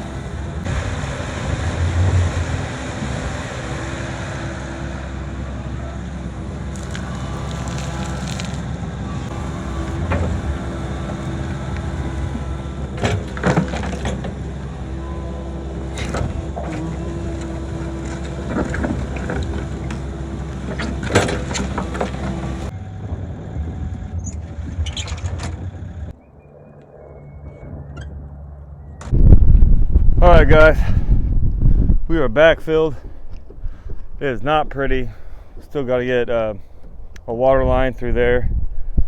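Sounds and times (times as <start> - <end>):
excavator diesel engine running: 0.0 - 26.2
bucket clanking and scraping soil: 6.8 - 8.6.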